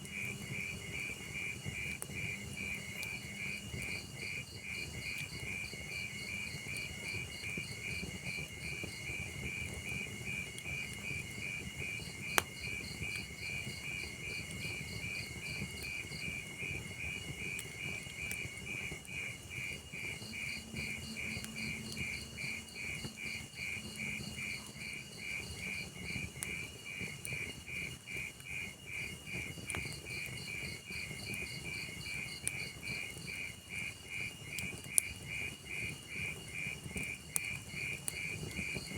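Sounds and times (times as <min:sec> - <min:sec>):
fire popping: 0:00.0 - 0:38.9
wood fire crackling: 0:00.0 - 0:38.9
cricket chirping: 0:00.1 - 0:38.9.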